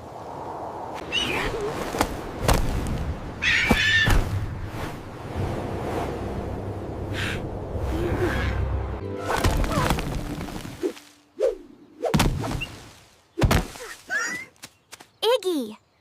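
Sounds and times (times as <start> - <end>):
music: 8.0 - 11.3.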